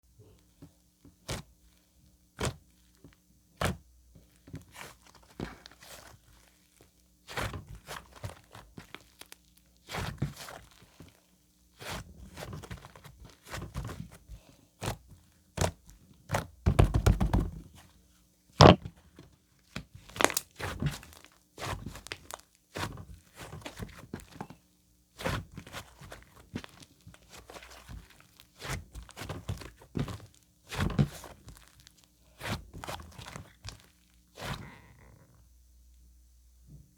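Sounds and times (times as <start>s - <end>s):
sticky slime squelching: 20.1s - 21.2s.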